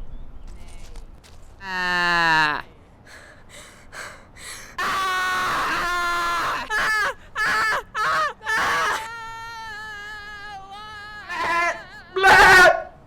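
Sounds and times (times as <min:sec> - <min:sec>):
goat bleating: 0:09.9 - 0:12.9.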